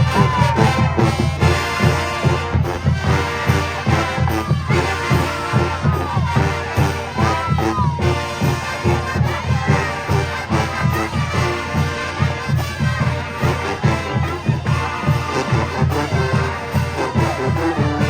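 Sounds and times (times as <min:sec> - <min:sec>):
brass section sliding notes: 0:00.0 - 0:18.0
drumline beat: 0:00.0 - 0:18.0.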